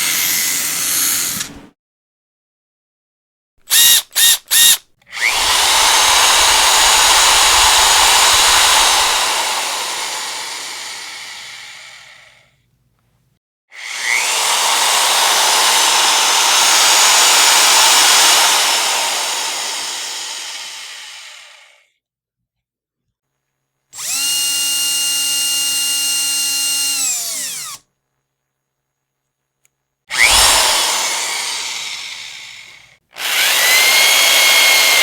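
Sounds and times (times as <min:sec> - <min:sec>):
electric power drill: 0:00.0 - 0:01.6, 0:03.7 - 0:12.4, 0:13.8 - 0:21.9, 0:24.0 - 0:27.8, 0:30.1 - 0:35.0.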